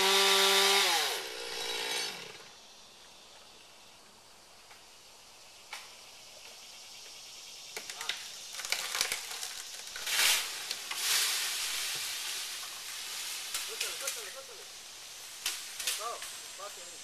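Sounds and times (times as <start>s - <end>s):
leafy branches crackling and snapping: 7.8s - 14.6s, 15.2s - 16.4s.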